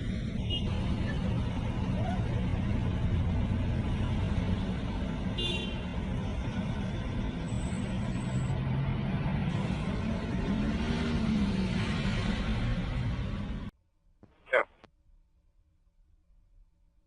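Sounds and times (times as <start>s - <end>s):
car engine and road rumble: 0.0s - 14.9s.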